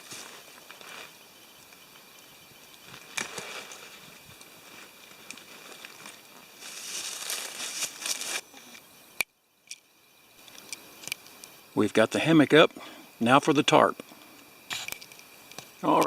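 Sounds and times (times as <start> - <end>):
rustling of hammock gear: 0.0 - 8.8
faint insect hum: 0.0 - 16.0.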